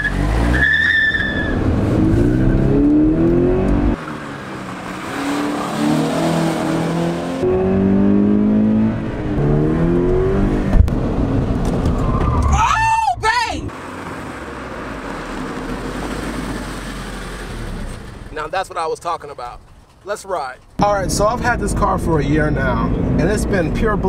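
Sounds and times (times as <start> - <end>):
high squeal: 0.0 - 2.6
car engine accelerating hard: 0.0 - 11.9.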